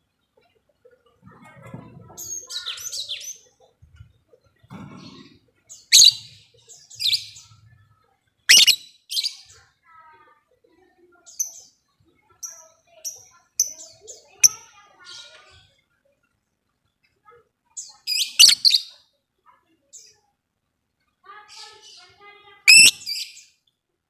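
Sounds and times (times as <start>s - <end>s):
lovebirds chattering: 1.8s - 7.8s, 8.5s - 9.7s, 11.0s - 16.3s, 17.0s - 19.0s, 21.3s - 23.6s
loud sharp bird shrieks: 8.5s - 8.8s, 22.7s - 23.2s.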